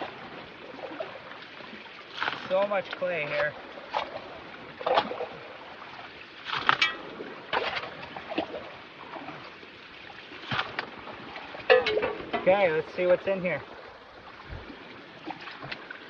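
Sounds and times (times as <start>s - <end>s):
creek rushing: 0.0s - 16.0s
water splashing in a pan: 6.4s - 9.4s, 10.3s - 13.6s.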